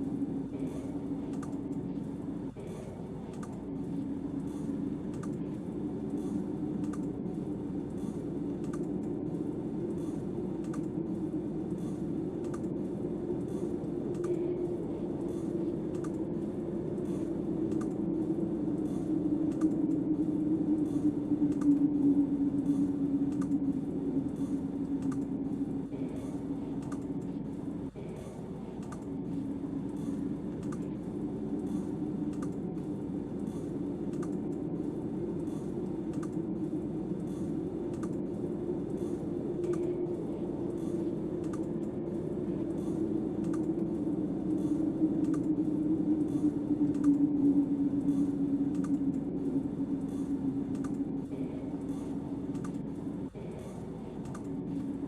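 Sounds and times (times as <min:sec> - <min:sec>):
wind howling: 0:00.0 - 0:55.0
light clicks: 0:01.3 - 0:01.8, 0:03.3 - 0:03.6, 0:04.4 - 0:05.5, 0:06.1 - 0:07.2, 0:07.9 - 0:09.2, 0:09.9 - 0:11.0, 0:11.7 - 0:12.8, 0:13.4 - 0:27.3, 0:28.8 - 0:31.0, 0:31.6 - 0:34.7, 0:35.4 - 0:36.4, 0:38.9 - 0:42.0, 0:42.6 - 0:49.3, 0:50.0 - 0:52.8, 0:53.6 - 0:55.0.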